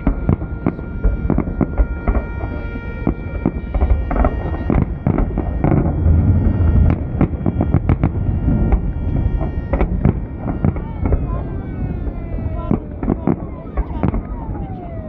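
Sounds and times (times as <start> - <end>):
continuous rumble: 0.0 - 15.0
fireworks bangs and crackles: 0.0 - 15.0
steady pitched tone: 0.0 - 15.0.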